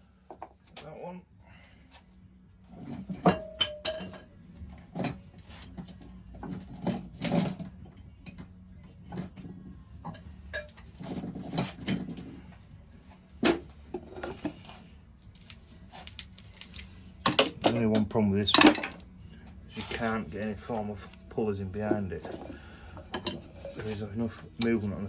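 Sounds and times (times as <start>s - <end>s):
metal tools clinking on engine parts: 4.9s - 8.4s, 10.5s - 12.4s, 15.9s - 19.1s.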